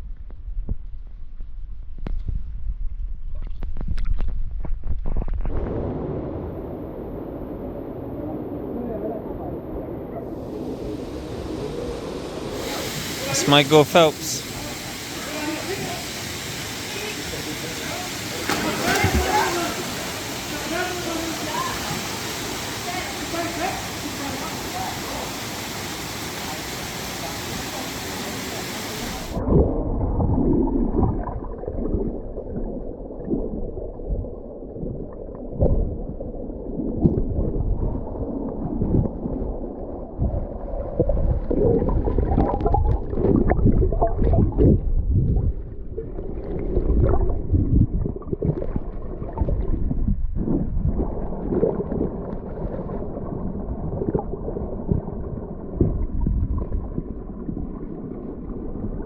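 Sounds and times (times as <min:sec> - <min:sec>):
underwater sloshing and bubbles: 0:29.4 - 0:59.0.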